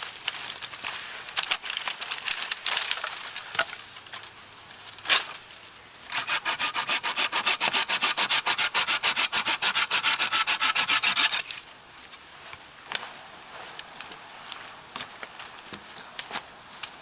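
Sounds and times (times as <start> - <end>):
hand saw cutting wood: 6.1 - 11.5.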